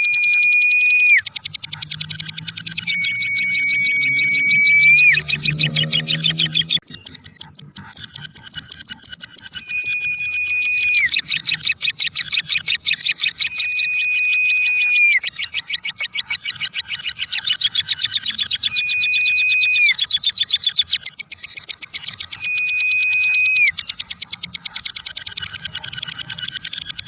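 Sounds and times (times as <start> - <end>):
whistled tone: 0.0 - 6.8, 9.5 - 11.4, 13.3 - 15.4, 18.6 - 20.1, 22.2 - 24.0
lovebird chattering: 0.0 - 27.0.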